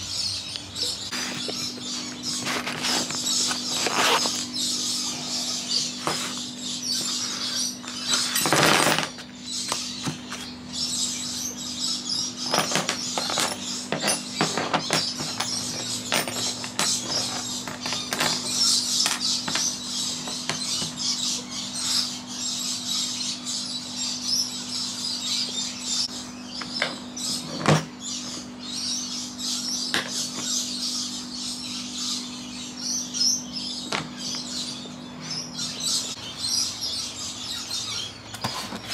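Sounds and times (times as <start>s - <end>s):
air-conditioning unit humming: 0.0s - 38.9s
birds chirping: 0.0s - 38.9s
clicks and rustles of handled tools: 0.5s - 4.5s, 5.9s - 10.5s, 12.4s - 21.0s.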